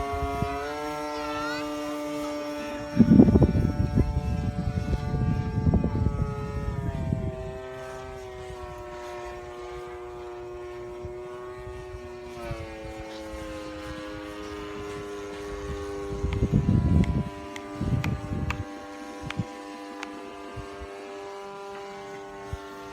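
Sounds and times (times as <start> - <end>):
model airplane propeller droning: 0.0 - 22.9
wind buffeting microphone: 0.0 - 22.9.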